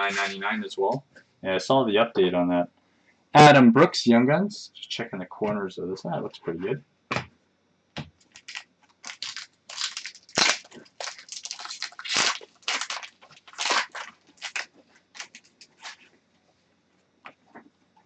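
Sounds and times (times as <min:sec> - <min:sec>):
plastic packaging crinkling: 0:08.2 - 0:16.1.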